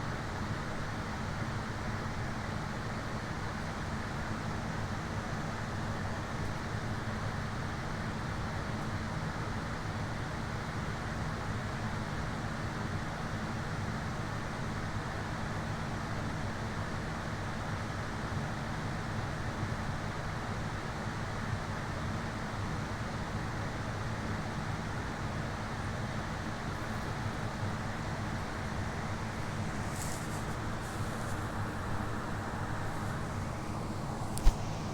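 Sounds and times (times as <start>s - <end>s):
hiss: 29.4s - 33.3s.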